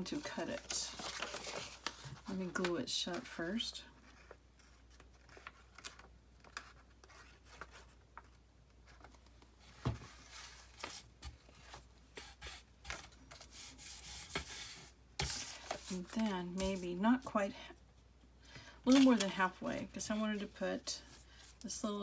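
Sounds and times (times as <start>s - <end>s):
paper rubbing and rustling: 0.0s - 16.9s.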